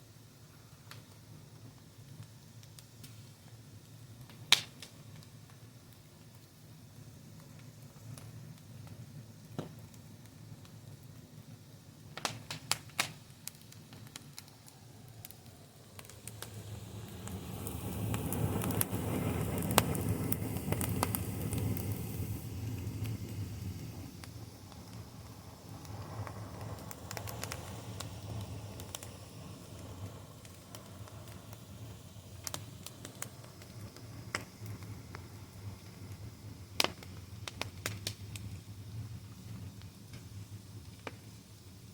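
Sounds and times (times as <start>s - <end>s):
wood fire crackling and popping: 0.4s - 41.9s
low steady rumble: 13.3s - 41.9s.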